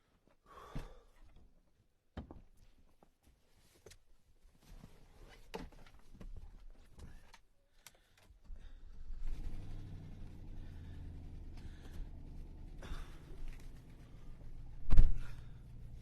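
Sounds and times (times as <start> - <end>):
truck engine starting and idling: 8.7 - 16.0.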